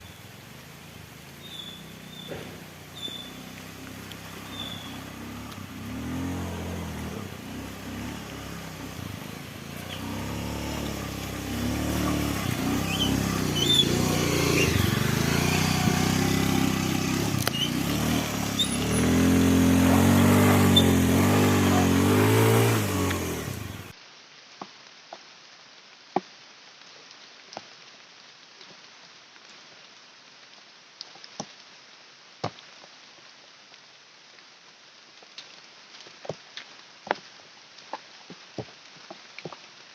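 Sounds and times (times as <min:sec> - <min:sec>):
vehicle engine revving: 0:01.7 - 0:23.9.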